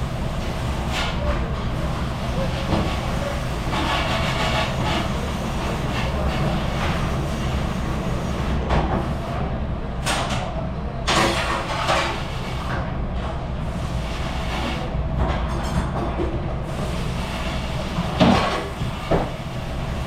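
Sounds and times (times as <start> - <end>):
dishwashing machine running: 0.0 - 9.4, 10.0 - 20.0
dishes and racks clattering: 18.2 - 19.3.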